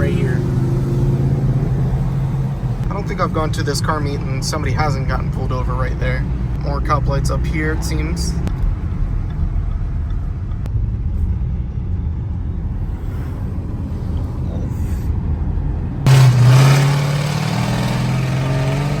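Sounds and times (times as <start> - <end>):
car driving rumble: 0.0 - 19.0
loud exhaust engine drone: 16.0 - 19.0.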